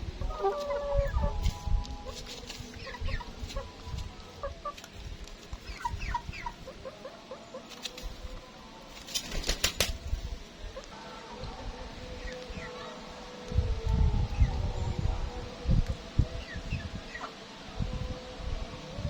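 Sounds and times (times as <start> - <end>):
chickens clucking: 0.1 - 9.1.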